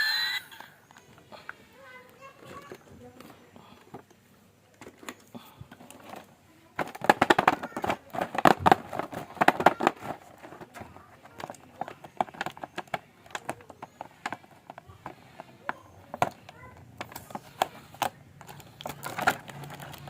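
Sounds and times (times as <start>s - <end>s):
plastic packaging crinkling: 6.7s - 15.3s, 16.1s - 20.0s.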